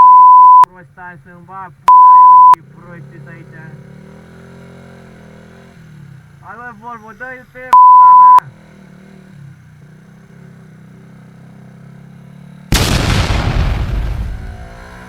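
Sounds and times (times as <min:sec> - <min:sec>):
motorcycle engine idling: 0:00.7 - 0:12.8
loud explosive boom: 0:12.7 - 0:15.0.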